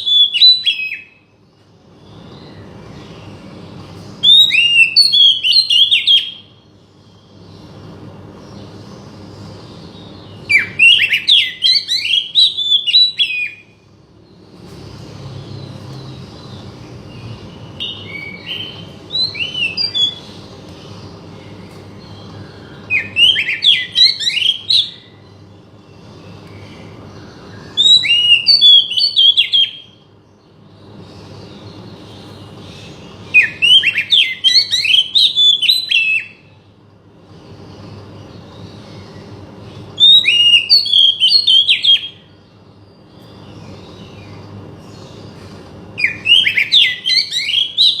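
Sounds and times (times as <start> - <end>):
bird singing whistled phrases: 0.0 - 1.2, 4.2 - 6.5, 10.4 - 13.8, 17.8 - 20.3, 22.2 - 25.1, 27.6 - 30.0, 33.3 - 36.5, 40.0 - 42.3, 46.0 - 48.0.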